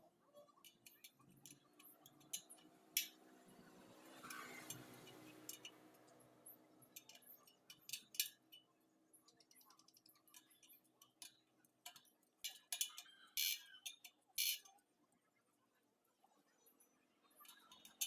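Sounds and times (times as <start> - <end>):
metal clicks of spokes and tools: 0.6 - 14.8, 17.3 - 18.0.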